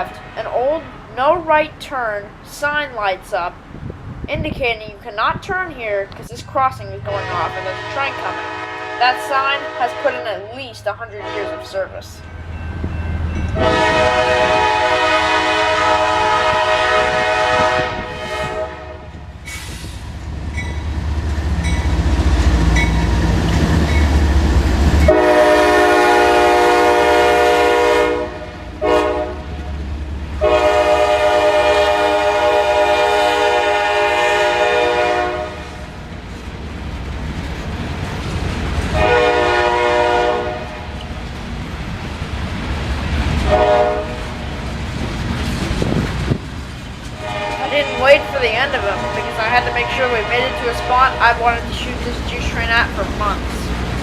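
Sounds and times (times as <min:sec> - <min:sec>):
diesel engine rumbling: 0:00.0 - 0:18.0, 0:18.6 - 0:54.0
locomotive horn chord: 0:07.0 - 0:12.1, 0:13.5 - 0:19.2, 0:25.0 - 0:29.6, 0:30.4 - 0:35.8, 0:38.9 - 0:41.0, 0:43.5 - 0:44.2, 0:47.2 - 0:53.7.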